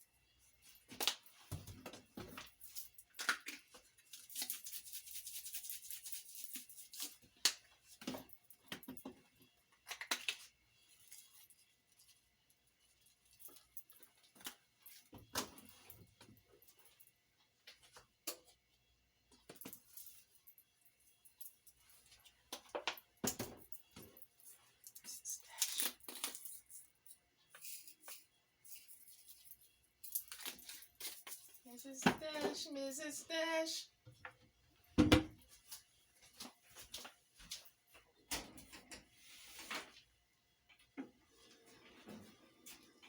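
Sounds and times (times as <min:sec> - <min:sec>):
seasoning shaker rattling: 0:04.0 - 0:07.2.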